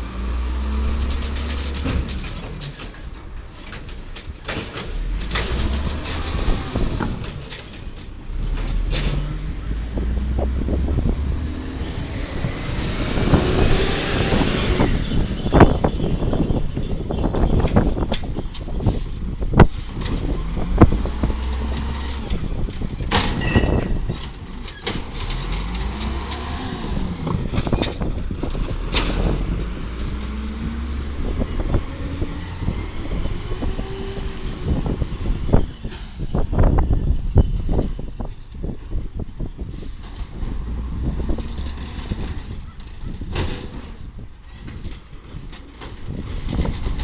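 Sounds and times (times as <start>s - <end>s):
diesel engine revving: 0.0s - 47.0s
metal clanks and bangs: 0.6s - 32.3s.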